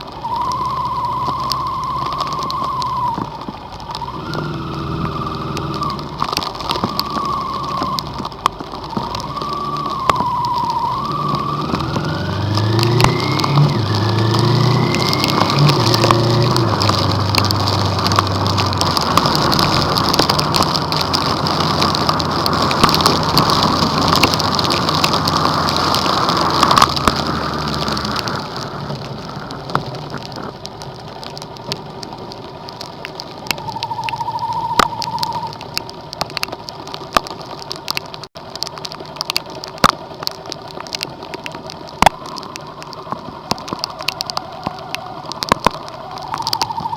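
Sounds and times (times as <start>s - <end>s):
car engine and road noise: 0.0s - 46.9s
heavy rain drumming on car: 0.0s - 46.9s.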